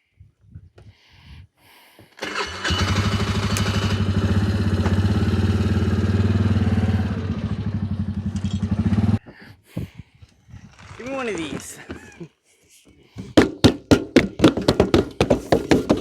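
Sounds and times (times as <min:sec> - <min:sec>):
atv engine running: 0:02.2 - 0:09.2.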